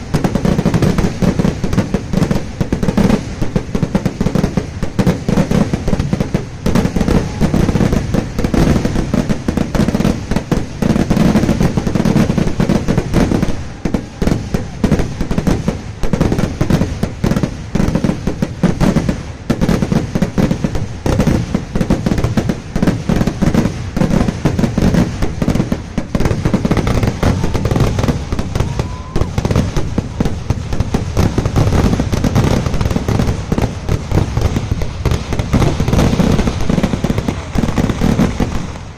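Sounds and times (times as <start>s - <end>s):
fireworks bangs and cracks: 0.0s - 38.9s.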